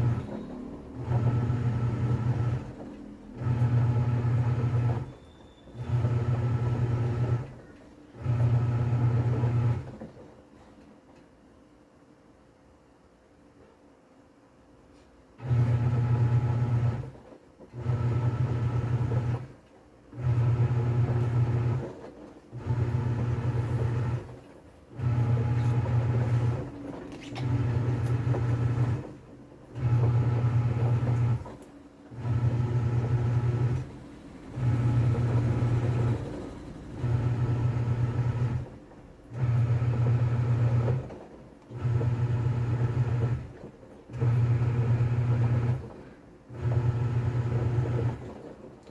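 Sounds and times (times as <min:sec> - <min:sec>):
washing machine motor humming: 0:00.0 - 0:10.3, 0:15.4 - 0:48.9.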